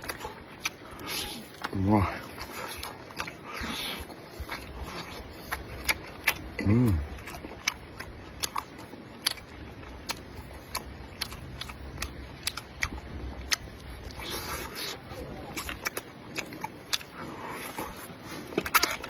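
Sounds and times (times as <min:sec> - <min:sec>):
chewing clicks and smacks: 0:00.0 - 0:19.0
person humming: 0:06.6 - 0:07.1.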